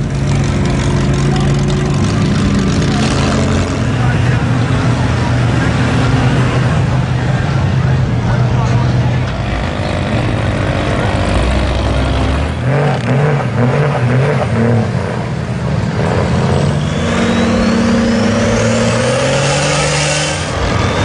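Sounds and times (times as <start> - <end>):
truck engine revving: 0.0 - 21.0
high whine climbing in pitch: 15.8 - 21.0.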